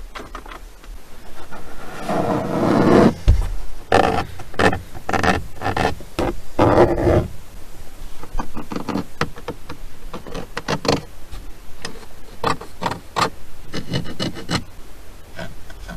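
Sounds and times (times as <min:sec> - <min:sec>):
car trim creaking and scraping: 0:01.4 - 0:07.3, 0:10.2 - 0:11.1.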